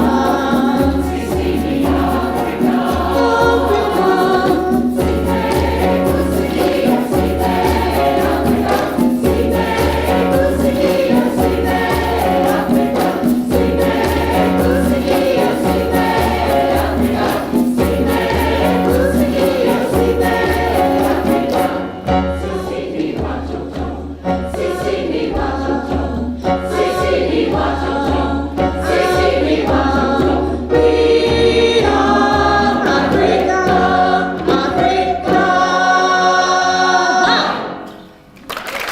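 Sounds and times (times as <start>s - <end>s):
sharp rattling percussion: 0.0s - 23.9s
choir singing in harmony: 0.0s - 38.2s.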